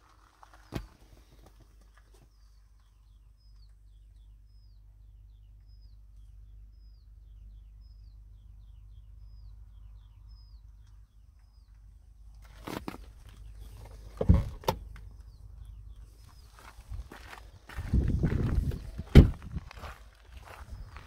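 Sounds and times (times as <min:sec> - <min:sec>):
songbird singing: 0:00.0 - 0:21.0.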